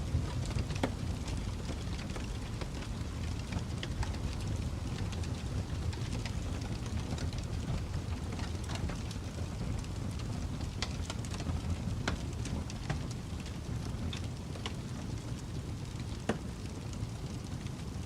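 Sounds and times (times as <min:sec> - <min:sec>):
fire crackles and pops: 0:00.0 - 0:18.0
low roar of flames: 0:00.0 - 0:18.0.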